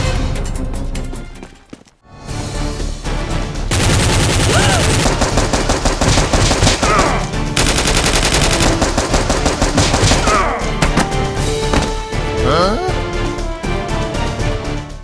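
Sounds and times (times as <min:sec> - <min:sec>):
rapid automatic gunfire: 0:03.7 - 0:10.6.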